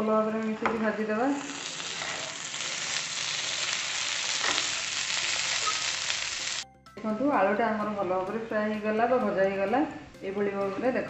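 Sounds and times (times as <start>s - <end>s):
potatoes sizzling in oil: 0.3s - 6.6s
wooden spatula scraping pan: 1.8s - 2.4s.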